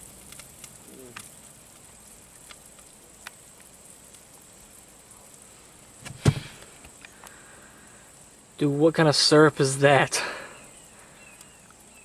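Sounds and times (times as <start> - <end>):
sharp knock: 6.0 - 6.5.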